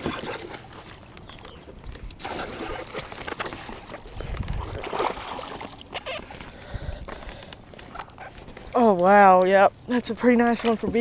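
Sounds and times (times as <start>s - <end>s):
water splashes and drips: 0.0s - 6.5s.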